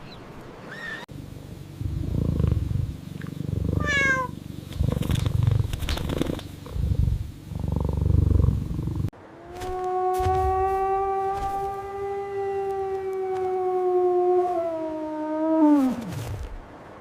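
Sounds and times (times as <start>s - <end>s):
cat purring: 1.6s - 9.1s
cat call falling in pitch: 9.5s - 13.9s.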